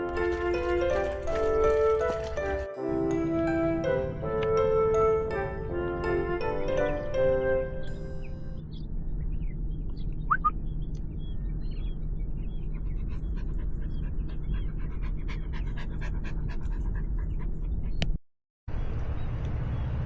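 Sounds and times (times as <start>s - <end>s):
small dog panting: 0.2s - 2.7s, 12.6s - 18.1s
low rumble: 8.0s - 18.0s, 18.7s - 20.0s
faint high chirps: 10.1s - 10.6s.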